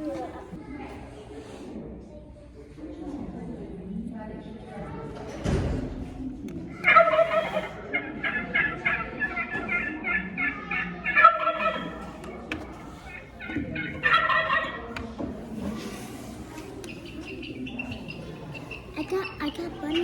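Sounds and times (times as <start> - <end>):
bird calling in repeated notes: 16.9 - 20.0.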